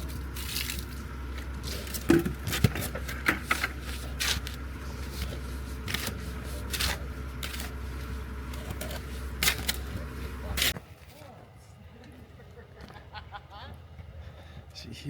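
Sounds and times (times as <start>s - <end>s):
hand tools scraping wet mortar: 0.0s - 10.8s
steady low hum: 0.0s - 15.0s.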